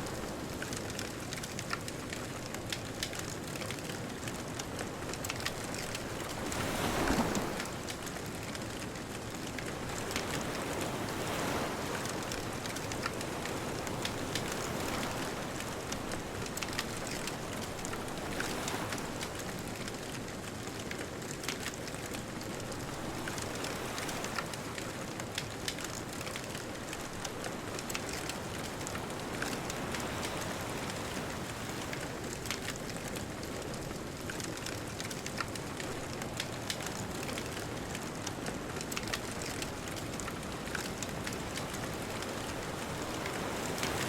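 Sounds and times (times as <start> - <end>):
bonfire crackling: 0.3 - 6.9, 19.6 - 22.1, 30.4 - 44.0
distant ocean surf: 35.0 - 44.0.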